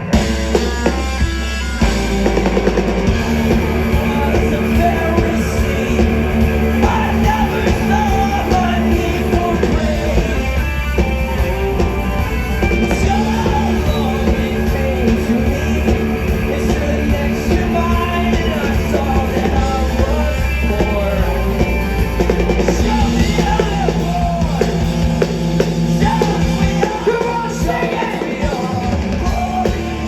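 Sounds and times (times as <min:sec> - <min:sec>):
rock band playing loud: 0:00.0 - 0:30.0
person singing: 0:03.1 - 0:10.7, 0:13.0 - 0:21.8.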